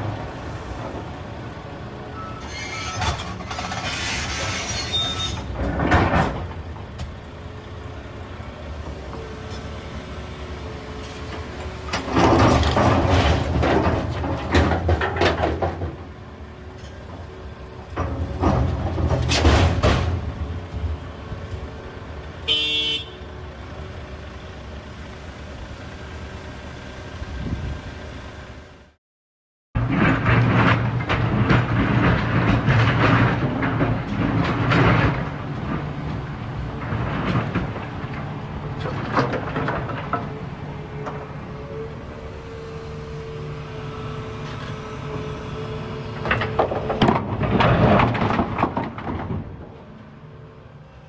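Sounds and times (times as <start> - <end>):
excavator engine hum: 0.0 - 29.0, 29.8 - 51.0
rocks clattering on steel: 46.3 - 49.6.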